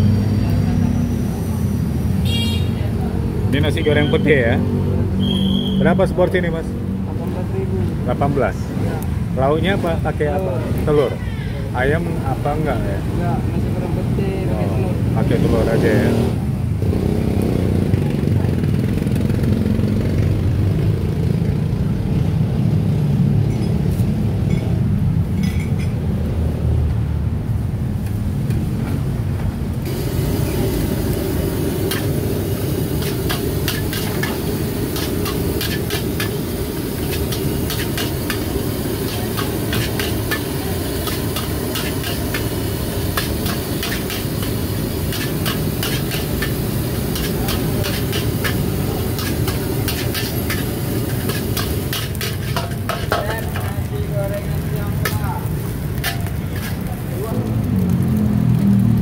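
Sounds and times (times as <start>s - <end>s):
gas burner rumbling: 0.0s - 59.0s
food sizzling: 29.8s - 59.0s
metal spatula scraping a wok: 33.0s - 53.8s, 56.0s - 56.9s.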